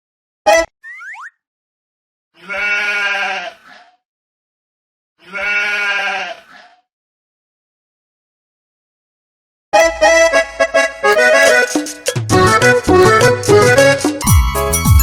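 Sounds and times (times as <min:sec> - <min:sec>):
sheep bleating: 0:02.4 - 0:04.0, 0:05.2 - 0:06.8.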